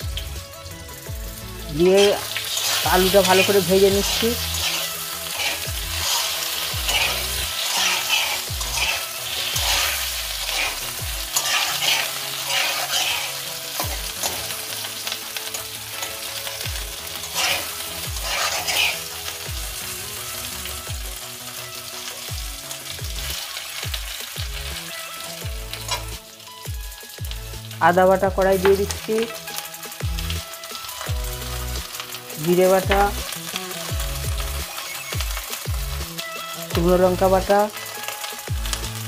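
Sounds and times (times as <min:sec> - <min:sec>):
potatoes sizzling in oil: 0:00.0 - 0:39.0
metal spatula scraping pan: 0:02.4 - 0:15.2, 0:16.0 - 0:19.2.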